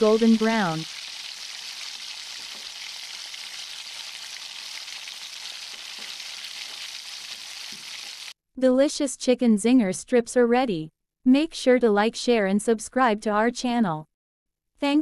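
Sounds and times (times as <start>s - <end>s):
chicken deep-frying in oil: 0.0s - 8.4s.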